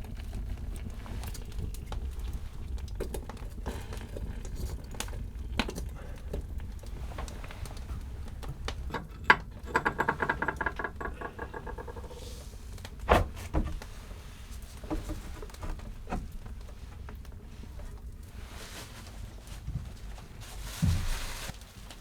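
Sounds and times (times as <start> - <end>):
knocks and clicks of handling: 8.4 - 14.0.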